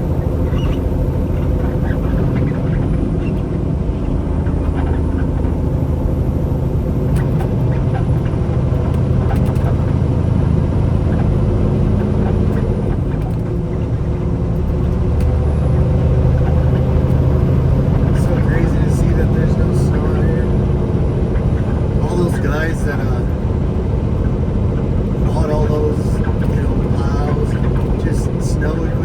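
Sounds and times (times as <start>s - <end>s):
diesel truck engine droning: 0.0s - 29.0s
road noise: 0.0s - 29.0s.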